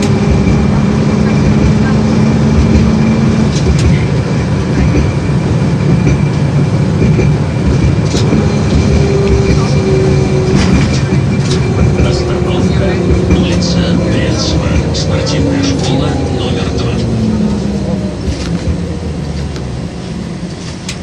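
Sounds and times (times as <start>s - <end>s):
tram wheels rumbling: 0.0s - 21.0s.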